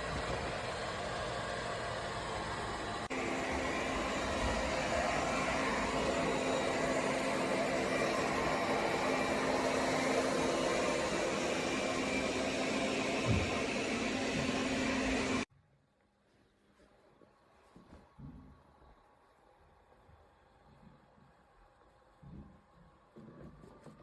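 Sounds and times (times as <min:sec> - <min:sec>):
robot vacuum motor humming: 0:00.0 - 0:15.5
whirring noise: 0:00.0 - 0:15.5.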